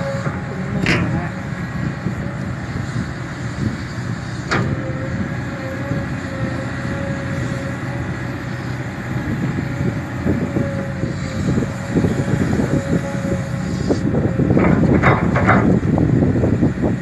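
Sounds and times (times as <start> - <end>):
thin steady whine: 0.0 - 14.4
excavator diesel engine running: 0.0 - 17.0.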